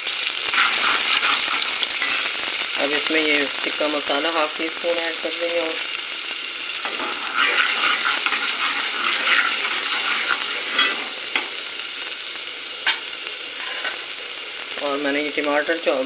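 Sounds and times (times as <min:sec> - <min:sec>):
spices sizzling in hot oil: 0:00.0 - 0:16.0
spoon scraping metal pot: 0:00.5 - 0:02.3, 0:06.8 - 0:11.5, 0:13.6 - 0:14.0.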